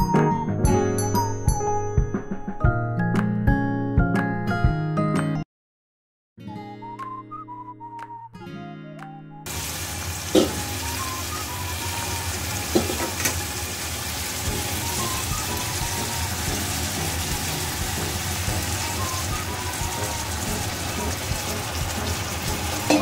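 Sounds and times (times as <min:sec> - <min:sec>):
chicken sizzling in a wok: 0:09.5 - 0:23.0
knocks against the pan: 0:10.3 - 0:10.6, 0:12.7 - 0:13.4.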